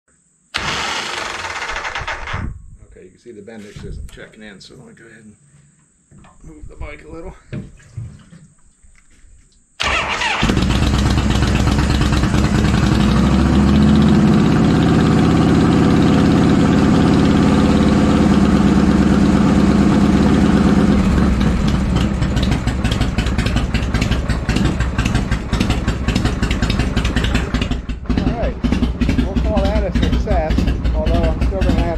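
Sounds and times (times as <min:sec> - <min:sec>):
motorcycle engine starting and running: 0:00.5 - 0:02.5, 0:09.8 - 0:31.9.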